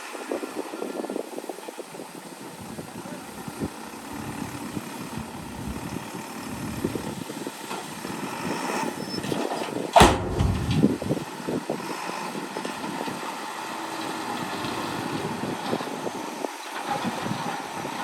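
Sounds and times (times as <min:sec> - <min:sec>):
loud bang: 0:10.0 - 0:11.1
metal clanks and knocks: 0:10.0 - 0:11.1
heavy diesel engines running: 0:10.0 - 0:11.2.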